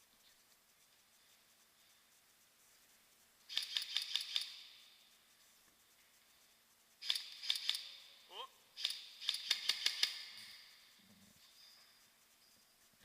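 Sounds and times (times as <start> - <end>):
airsoft rifle firing bursts: 8.8 - 10.4.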